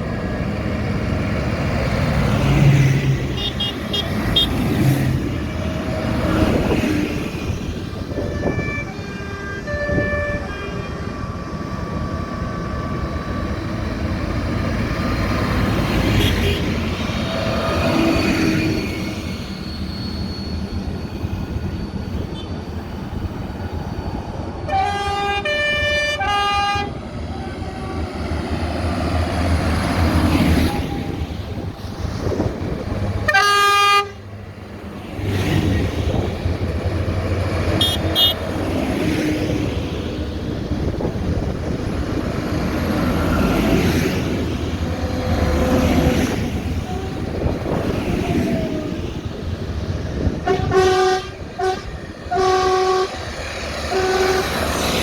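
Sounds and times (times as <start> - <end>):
horn sounding: 8.2 - 11.2, 24.7 - 27.0, 33.3 - 34.2, 37.7 - 38.5, 50.3 - 55.0.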